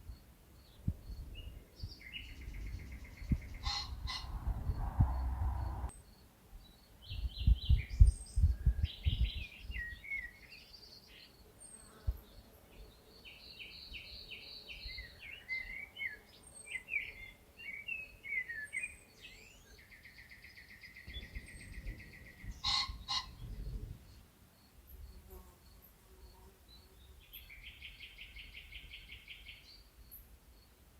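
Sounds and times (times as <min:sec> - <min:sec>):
songbird singing: 0:00.0 - 0:30.9
low rumble: 0:02.5 - 0:05.9.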